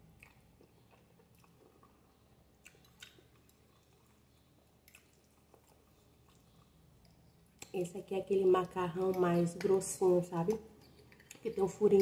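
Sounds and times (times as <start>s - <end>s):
soft chewing mouth clicks: 0.1s - 7.8s, 10.8s - 11.6s.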